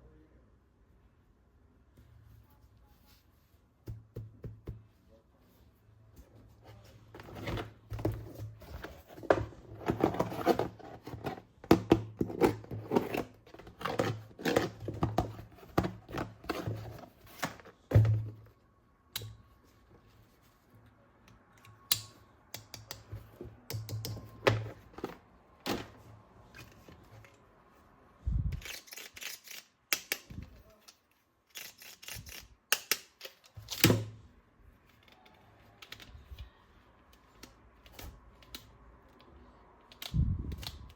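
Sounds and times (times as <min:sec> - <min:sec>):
plastic toy parts clicking: 0:28.6 - 0:33.8.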